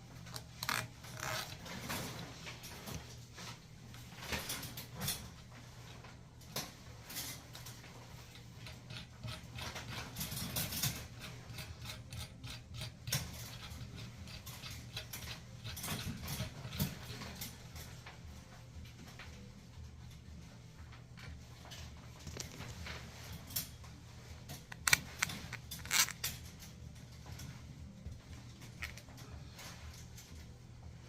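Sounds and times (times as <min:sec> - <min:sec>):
tools clicking and scraping: 0:00.2 - 0:03.2, 0:06.5 - 0:18.2, 0:20.9 - 0:27.6, 0:28.3 - 0:30.6.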